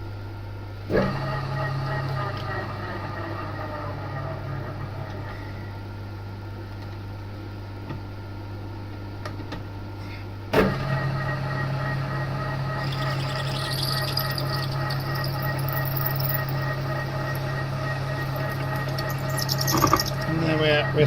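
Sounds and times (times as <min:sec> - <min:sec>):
milling machine humming: 0:00.9 - 0:06.4, 0:10.8 - 0:21.0
drill bit squealing on steel: 0:18.1 - 0:21.0.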